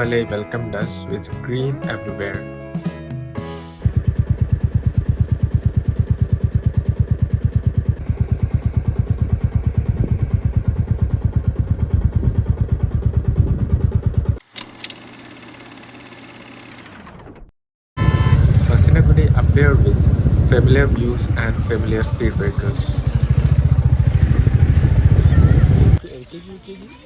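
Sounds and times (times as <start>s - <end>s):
motorcycle engine running: 3.8s - 17.2s, 18.0s - 26.0s.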